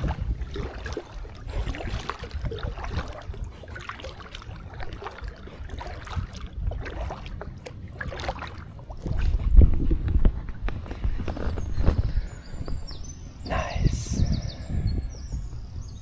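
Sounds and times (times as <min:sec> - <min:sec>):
water splashing: 0:00.0 - 0:12.0
wind buffeting microphone: 0:00.0 - 0:16.0.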